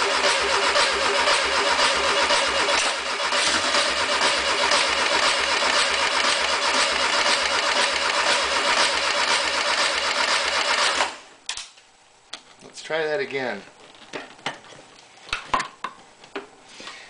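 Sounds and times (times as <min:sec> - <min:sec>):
cylinder firing rhythmic chug: 0:00.0 - 0:11.2
starter motor cranking engine: 0:00.0 - 0:11.2.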